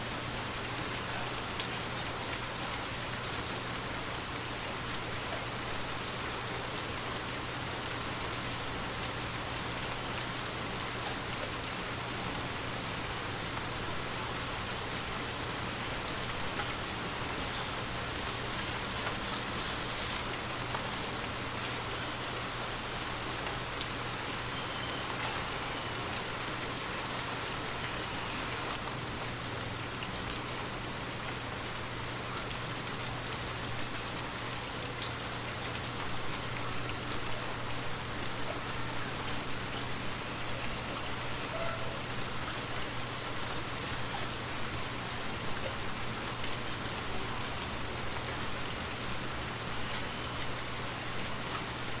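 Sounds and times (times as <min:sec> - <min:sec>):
rain falling: 0:00.0 - 0:52.0.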